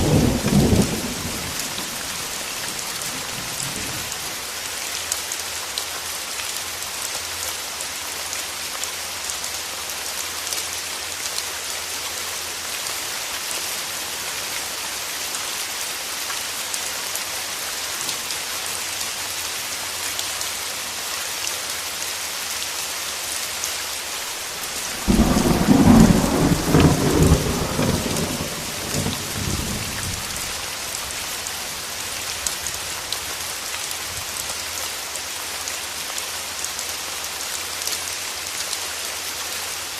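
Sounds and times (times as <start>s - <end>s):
thunder clap and rumble: 0.0s - 2.5s, 24.7s - 30.6s
steady rain falling: 0.0s - 39.9s.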